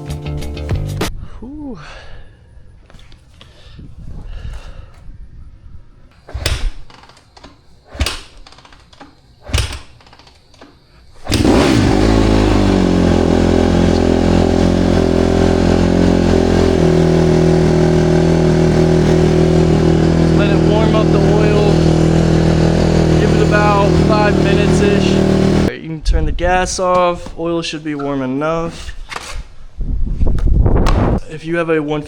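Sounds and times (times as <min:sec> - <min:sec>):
dirt bike engine starting and idling: 0:06.4 - 0:25.7.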